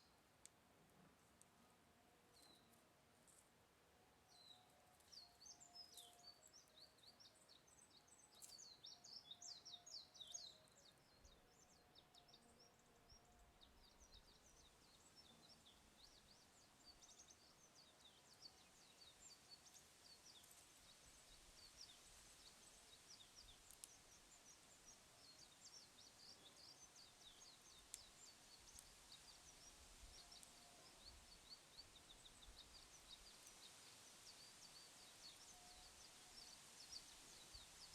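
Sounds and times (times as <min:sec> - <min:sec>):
small birds chirping: 0:04.3 - 0:37.9
faint clicks: 0:22.8 - 0:24.2, 0:26.6 - 0:31.0.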